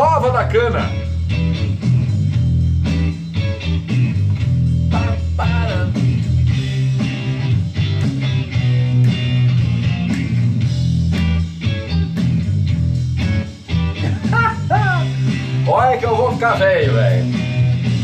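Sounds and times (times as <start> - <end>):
bass guitar: 0.0 - 18.0
drums: 0.0 - 18.0
electric guitar: 0.0 - 18.0
person singing: 4.9 - 6.1.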